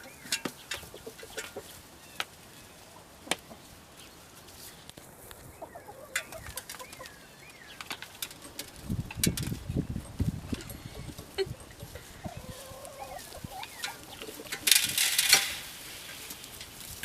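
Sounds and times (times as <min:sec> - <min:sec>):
chickens clucking: 0:00.0 - 0:17.0
low thumps and rustling: 0:07.8 - 0:17.0.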